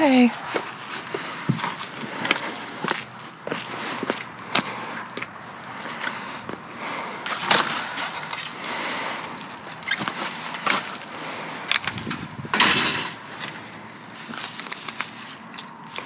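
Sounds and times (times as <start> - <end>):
loud scraping bursts: 5.7 - 13.8.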